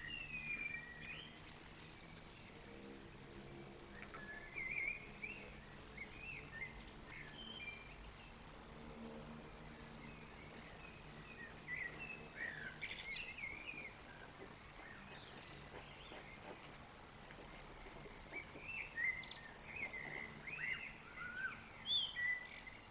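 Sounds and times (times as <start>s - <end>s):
low steady hum: 0.0s - 22.9s
songbird warbling: 3.8s - 8.4s, 9.6s - 16.8s, 17.8s - 22.9s.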